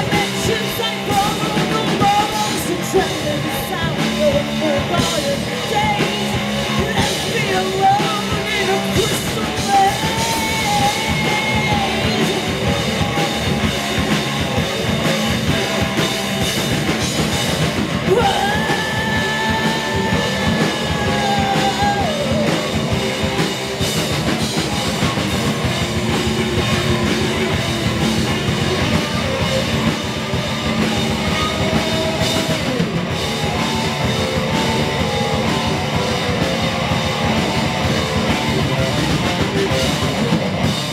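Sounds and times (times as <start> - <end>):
person singing: 0.0 - 13.2, 17.9 - 23.4
bass guitar: 0.0 - 40.9
distorted guitars: 0.0 - 40.9
drum kit: 0.0 - 40.9.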